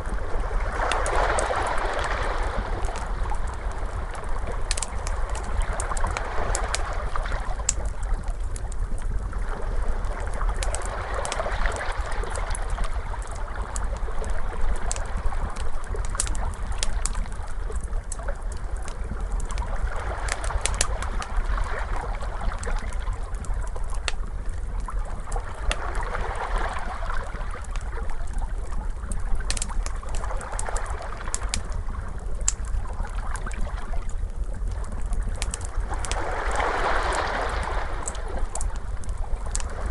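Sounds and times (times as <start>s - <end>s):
ocean waves washing in and out: 0.0s - 8.5s, 25.6s - 27.8s, 35.6s - 39.9s
crackling fire: 0.0s - 39.9s.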